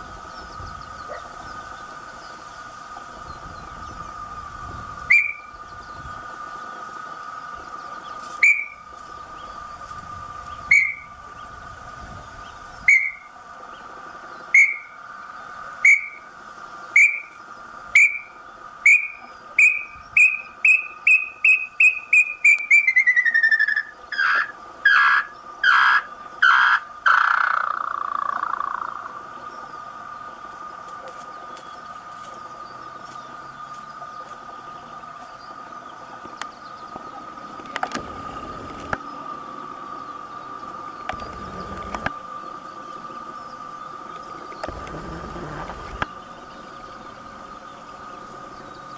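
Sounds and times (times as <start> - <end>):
bird whistling notes: 5.1 - 5.5, 8.4 - 8.8.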